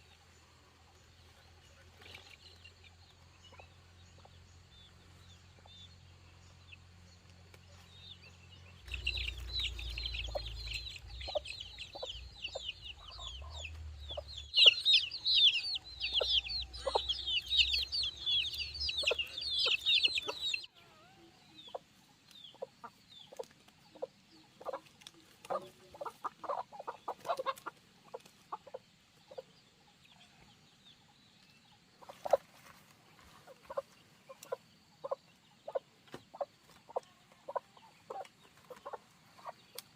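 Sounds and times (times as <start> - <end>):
chickens clucking: 1.0 - 39.9
chicks peeping: 1.1 - 39.9
low rumble: 8.7 - 20.2.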